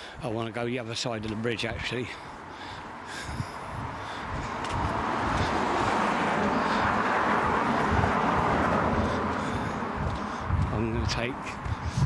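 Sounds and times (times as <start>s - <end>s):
vehicle passing: 2.6s - 12.0s.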